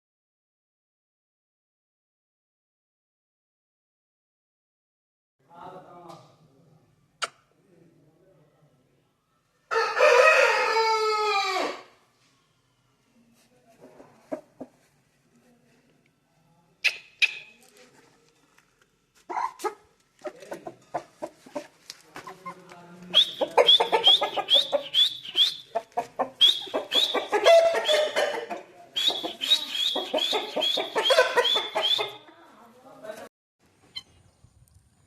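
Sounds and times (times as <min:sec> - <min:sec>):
chickens clucking: 0:19.3 - 0:32.3.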